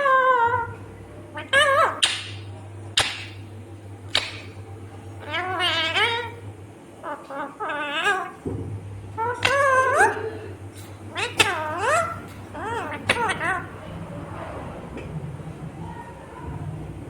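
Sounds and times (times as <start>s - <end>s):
parrot squawking: 0.0s - 0.8s, 1.4s - 2.4s, 5.2s - 6.4s, 7.0s - 8.4s, 9.1s - 14.2s
parrot warbling calls: 0.0s - 3.4s, 4.1s - 6.4s, 7.0s - 8.5s, 9.1s - 14.2s.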